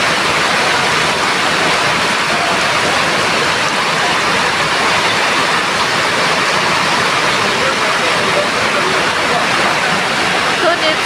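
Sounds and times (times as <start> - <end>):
heavy rain rushing: 0.0 - 11.0.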